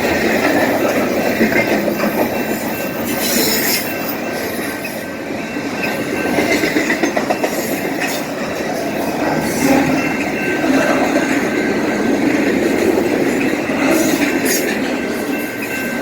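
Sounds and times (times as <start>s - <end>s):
clacks over rail joints: 0.0s - 16.0s
train wheels rumbling on rail: 0.0s - 16.0s
faint high wheel squeal: 1.9s - 5.1s.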